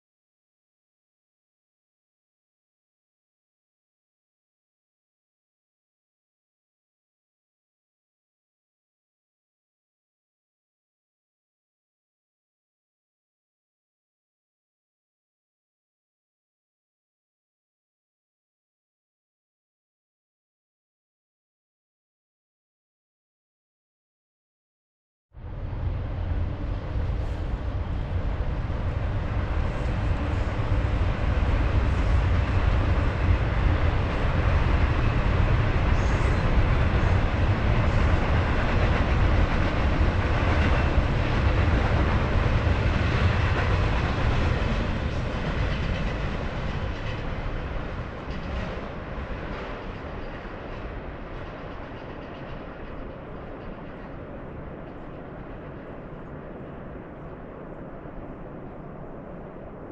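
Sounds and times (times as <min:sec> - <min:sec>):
train passing by rumbling: 0:25.4 - 0:59.9.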